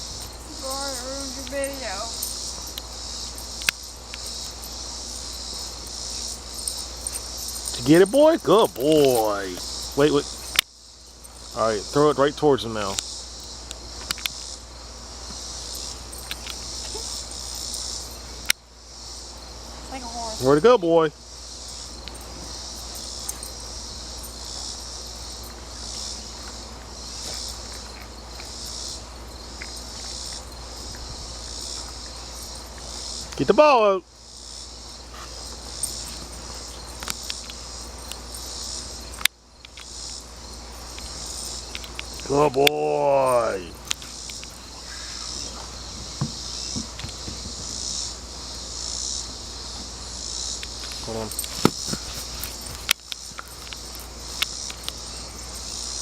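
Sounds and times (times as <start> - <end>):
high-pitched insect chorus: 0.0 - 56.0
faint ticks: 0.2 - 4.7.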